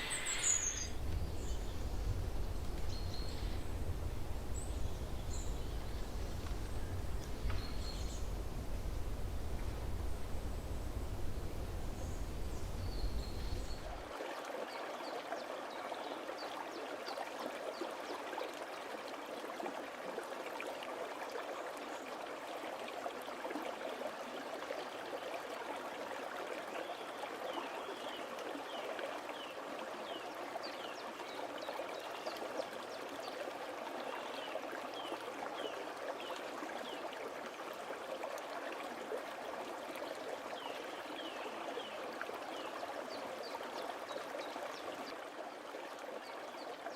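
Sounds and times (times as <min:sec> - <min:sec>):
high falling chirps: 0:00.0 - 0:06.7
stream water running: 0:00.0 - 0:46.9.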